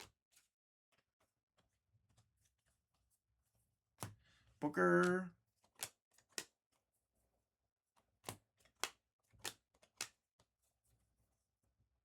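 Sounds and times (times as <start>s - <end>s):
cards flipping papery swish: 8.2s - 10.2s.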